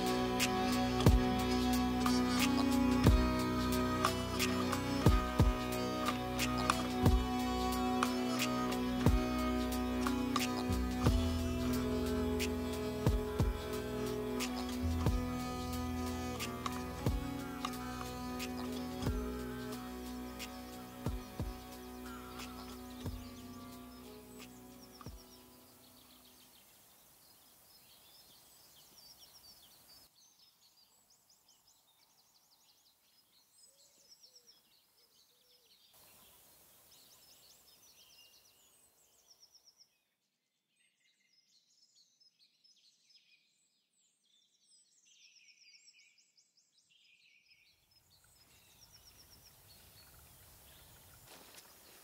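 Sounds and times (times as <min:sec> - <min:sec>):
soft background hiss: 0:00.0 - 0:34.8, 0:35.8 - 0:39.6
songbirds chirping and trilling: 0:00.0 - 0:52.0.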